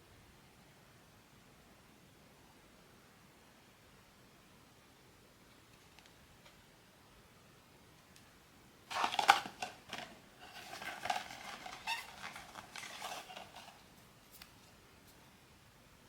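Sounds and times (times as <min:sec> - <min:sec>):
packaging rustling and crackling: 0:08.9 - 0:14.8.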